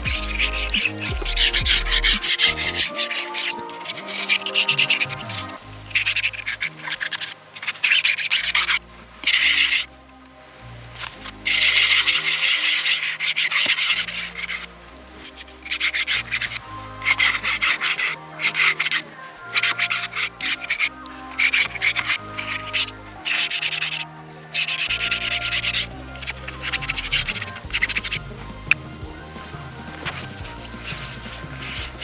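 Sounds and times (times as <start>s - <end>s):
brush scrubbing fabric upholstery: 0.0s - 8.6s, 15.6s - 32.0s.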